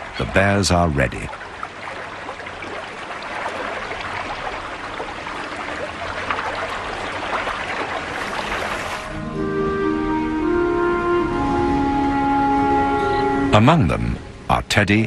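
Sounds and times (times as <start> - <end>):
river water rushing and splashing: 0.0 - 14.5
music: 9.1 - 14.4.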